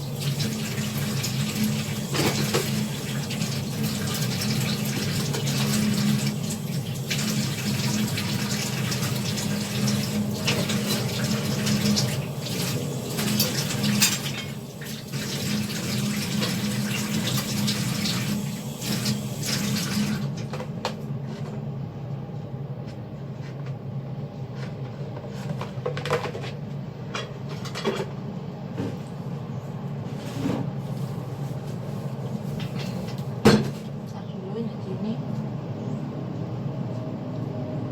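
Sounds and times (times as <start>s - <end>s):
tap running into sink: 0.2s - 20.6s.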